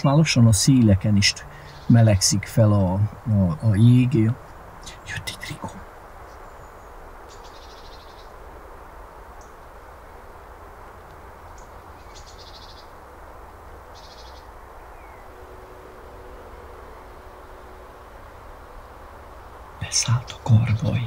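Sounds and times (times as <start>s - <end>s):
high buzzy bird calls: 0.0s - 21.0s
low outdoor background noise: 0.0s - 21.0s.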